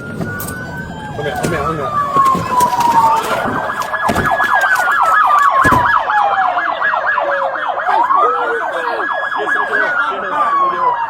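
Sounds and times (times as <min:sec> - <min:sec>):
police siren fast yelp: 0:00.0 - 0:11.0
police siren wail: 0:00.0 - 0:11.0
dull thumps: 0:01.3 - 0:04.9, 0:05.6 - 0:06.1.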